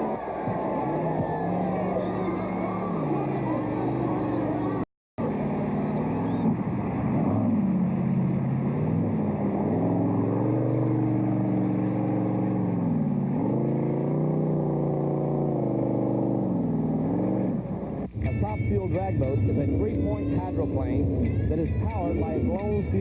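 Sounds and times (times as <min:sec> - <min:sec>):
boat engine running loud: 0:00.0 - 0:23.0.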